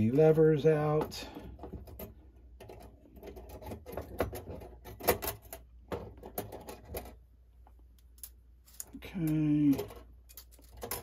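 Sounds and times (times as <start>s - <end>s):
small metal parts clinking: 8.0s - 11.0s.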